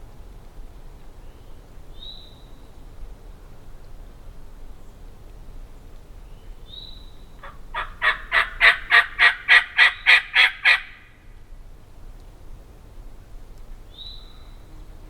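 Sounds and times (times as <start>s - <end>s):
turkey yelping: 7.4s - 11.0s.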